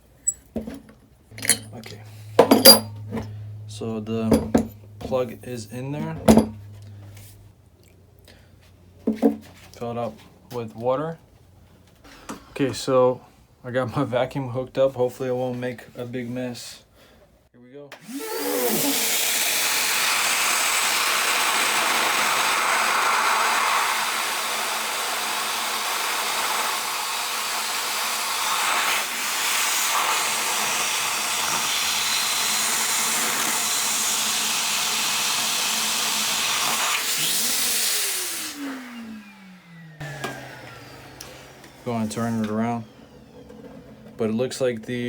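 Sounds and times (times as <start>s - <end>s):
vacuum cleaner running: 18.0s - 44.6s.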